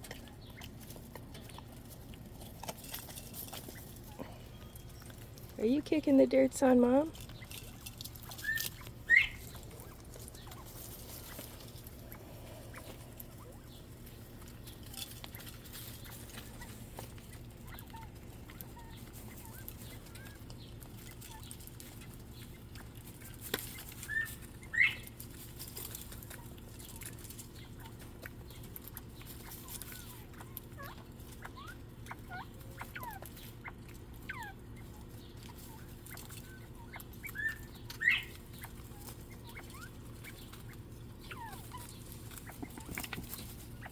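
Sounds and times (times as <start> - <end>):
low steady hum: 0.0 - 43.9
quail chirping and clucking: 0.0 - 43.9
quail rising calls: 8.2 - 21.5, 22.6 - 25.2, 29.2 - 43.9.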